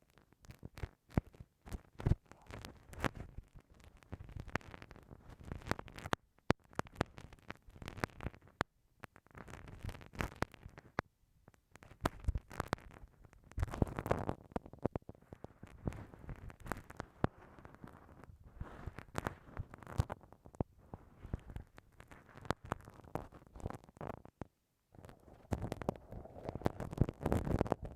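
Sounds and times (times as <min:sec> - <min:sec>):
ear pick scraping in microphone: 0:25.0 - 0:27.9.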